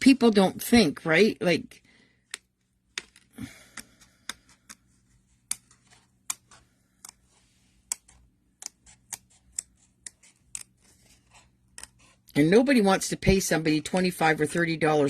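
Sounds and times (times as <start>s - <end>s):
scissors snipping card: 2.3s - 12.2s.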